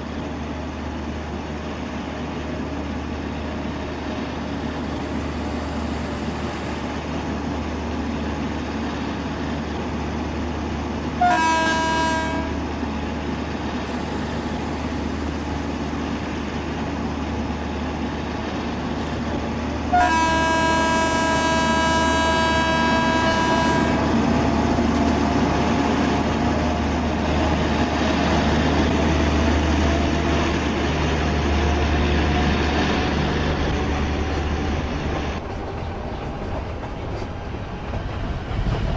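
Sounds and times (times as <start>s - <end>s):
train rumbling: 0.0s - 38.9s
train horn blasts: 11.2s - 12.7s, 19.9s - 24.2s.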